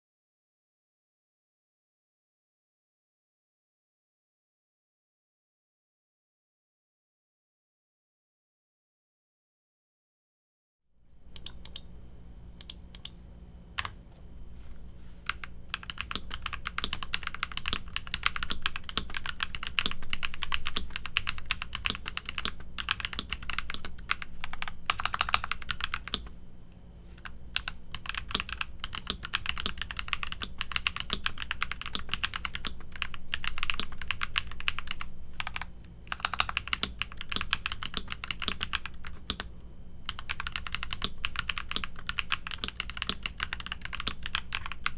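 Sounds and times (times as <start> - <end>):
mechanical keyboard typing: 11.4 - 11.8, 15.3 - 26.3, 27.2 - 39.5, 40.1 - 44.9.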